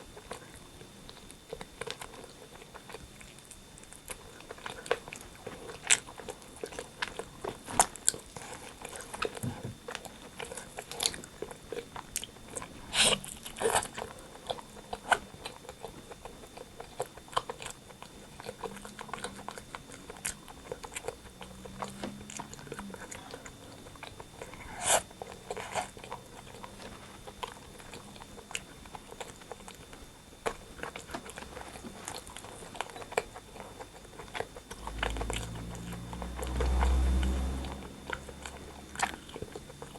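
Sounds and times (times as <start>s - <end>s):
chicken being chewed: 0.0s - 39.9s.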